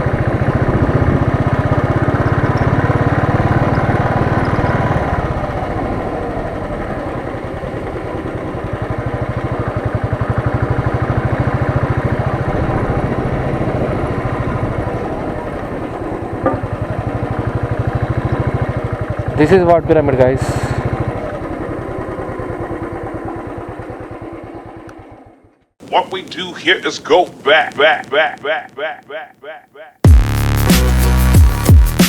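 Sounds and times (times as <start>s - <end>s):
motorcycle engine thumping: 16.3s - 19.4s.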